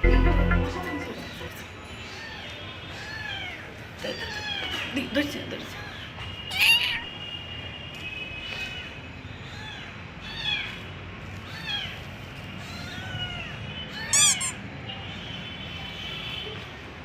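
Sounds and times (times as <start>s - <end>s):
cat meowing: 2.2s - 4.8s, 6.5s - 7.1s, 12.6s - 14.6s.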